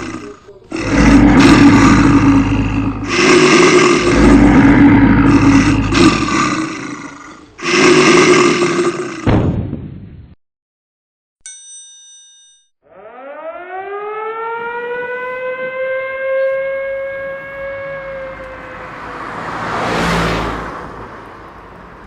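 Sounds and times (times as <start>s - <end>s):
siren wailing: 0.0s - 7.2s, 12.8s - 20.3s
broad rushing noise: 0.0s - 9.2s.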